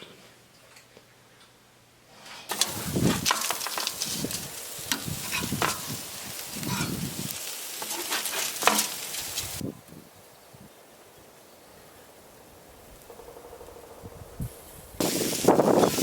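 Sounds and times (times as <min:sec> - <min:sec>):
crackles and knocks: 0:02.5 - 0:06.0, 0:07.8 - 0:09.6
burger patties sizzling on grill: 0:02.5 - 0:09.7, 0:14.4 - 0:16.0.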